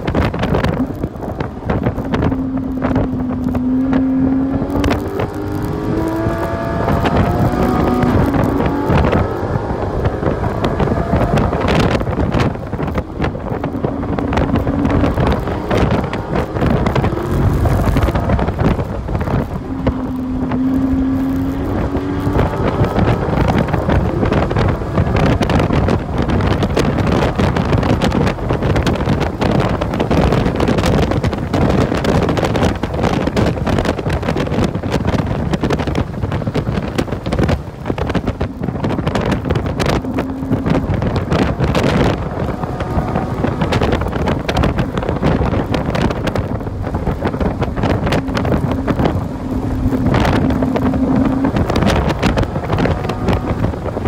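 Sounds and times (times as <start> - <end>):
car engine revving: 0.0 - 54.0
wind and road noise: 0.0 - 54.0.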